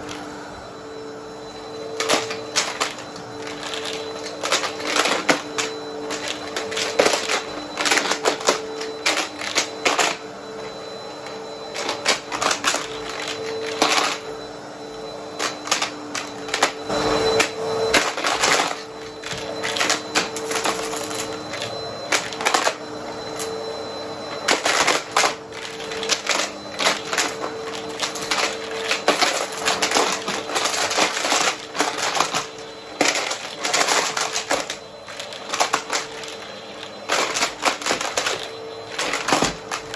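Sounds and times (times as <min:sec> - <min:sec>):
vacuum cleaner motor hum: 0:00.0 - 0:39.9
coins rattling through vacuum: 0:01.9 - 0:10.3, 0:11.6 - 0:14.4, 0:24.3 - 0:39.9.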